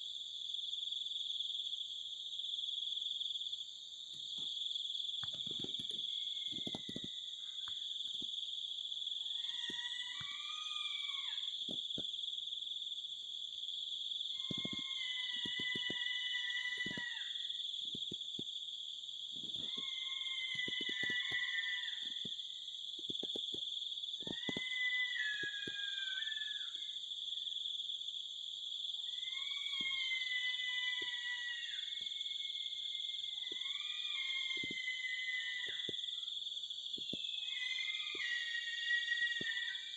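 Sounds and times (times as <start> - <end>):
high-pitched insect drone: 5.2 - 8.3, 9.1 - 12.0, 14.3 - 18.5, 19.3 - 27.1, 29.0 - 39.9
animal wavering call: 9.3 - 11.6, 14.4 - 17.5, 19.4 - 22.4, 24.2 - 27.0, 29.1 - 36.3, 37.1 - 39.9.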